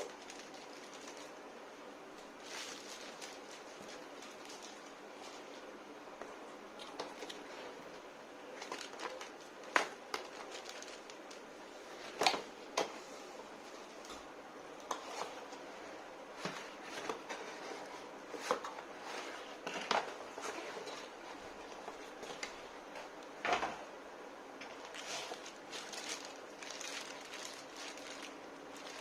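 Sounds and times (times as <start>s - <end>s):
packaging rustling: 0.0s - 1.6s, 2.2s - 5.7s, 6.8s - 13.0s, 24.6s - 29.0s.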